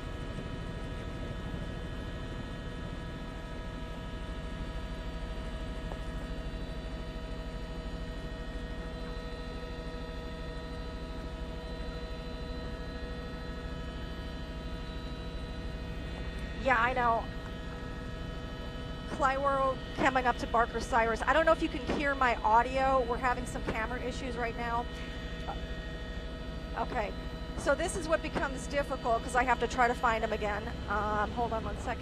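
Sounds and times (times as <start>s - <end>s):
constant whining tones: 0.0s - 32.0s
helicopter cabin drone: 0.0s - 32.0s.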